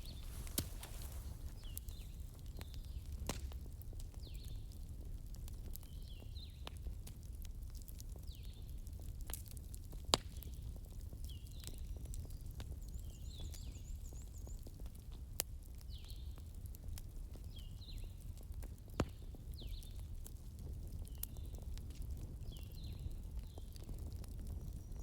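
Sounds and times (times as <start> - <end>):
loud firewood pops: 0.0 - 2.1
campfire rumbling and crackling: 0.0 - 25.0.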